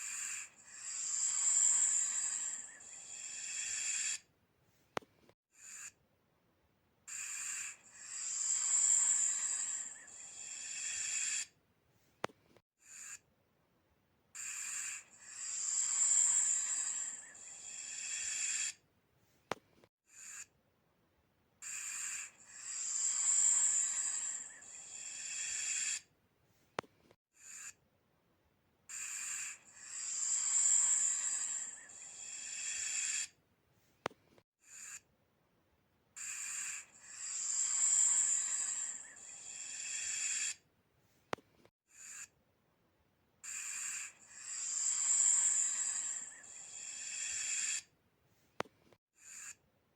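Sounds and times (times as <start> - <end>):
snake hissing: 0.0 - 4.2, 7.1 - 11.5, 14.4 - 18.8, 21.7 - 26.1, 29.0 - 33.4, 36.2 - 40.6, 43.5 - 47.9.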